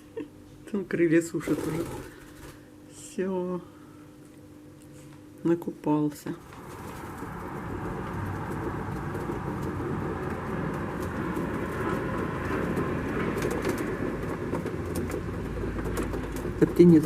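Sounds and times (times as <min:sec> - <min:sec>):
pigeons cooing: 0:06.6 - 0:16.5.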